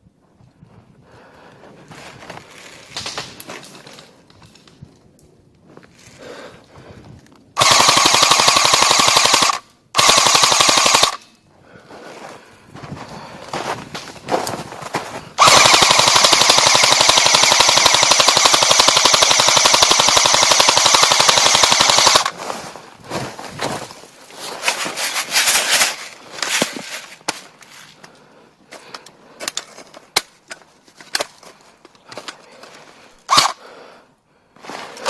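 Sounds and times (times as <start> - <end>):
airsoft gun firing full-auto: 7.6 - 11.2, 15.4 - 22.3, 33.3 - 33.6.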